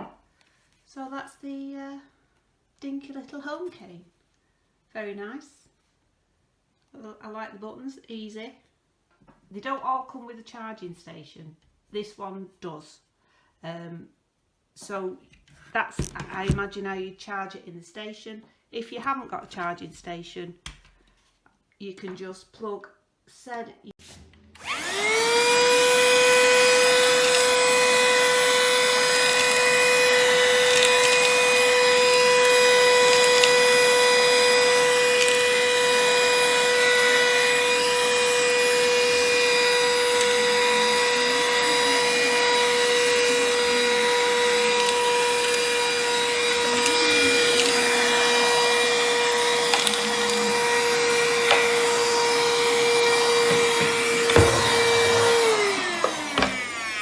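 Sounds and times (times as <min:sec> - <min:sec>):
handheld vacuum cleaner whining: 0:24.6 - 0:57.0.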